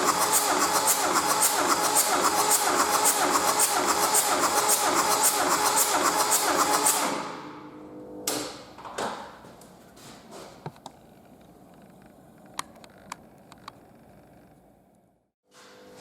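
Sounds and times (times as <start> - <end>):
diesel engine shutting off: 0.0 - 8.2.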